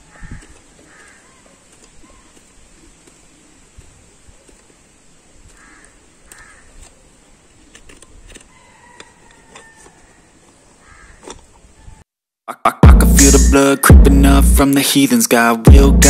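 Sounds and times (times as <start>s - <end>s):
bird calling: 0.0s - 2.6s, 5.5s - 7.7s, 9.6s - 12.0s.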